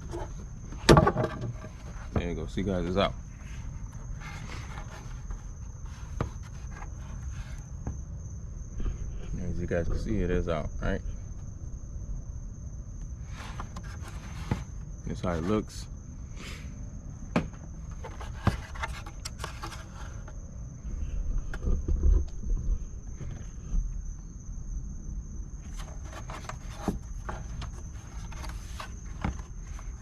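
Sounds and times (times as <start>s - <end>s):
crickets chirping: 0.0s - 30.0s
low rumbles: 7.0s - 13.7s.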